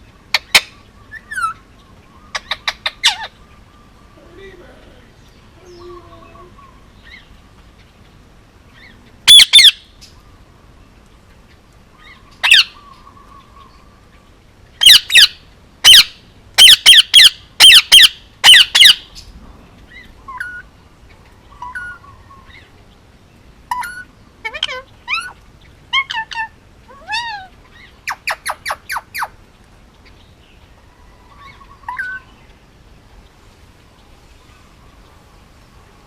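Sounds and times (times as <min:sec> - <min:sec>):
parakeet squawking: 0:02.3 - 0:03.4, 0:08.8 - 0:09.8, 0:12.4 - 0:12.8, 0:14.8 - 0:19.0, 0:23.7 - 0:29.4.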